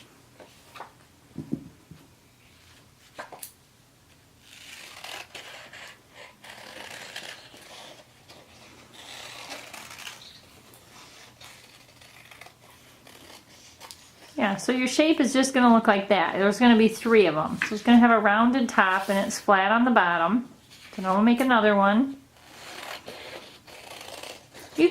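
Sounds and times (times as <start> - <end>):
paper rustling and scraping: 4.4 - 14.4, 18.8 - 19.4.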